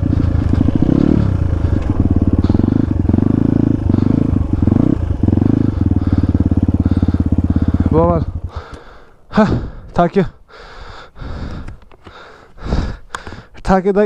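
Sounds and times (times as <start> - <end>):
dirt bike engine revving: 0.0 - 9.8.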